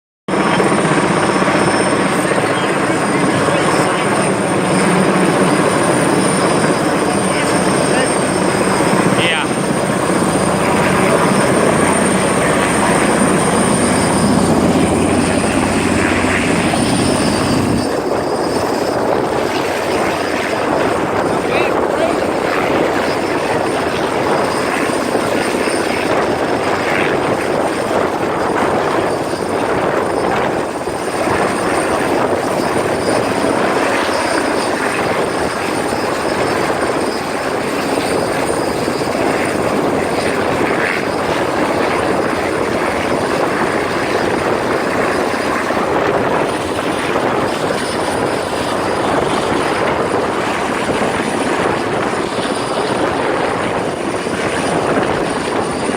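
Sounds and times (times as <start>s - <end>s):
helicopter rotor and engine: 0.3s - 55.9s
high whine: 0.4s - 27.2s.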